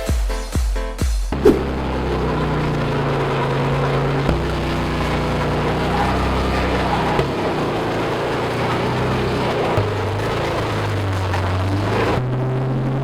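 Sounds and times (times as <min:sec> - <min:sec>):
car engine droning: 0:01.3 - 0:13.0.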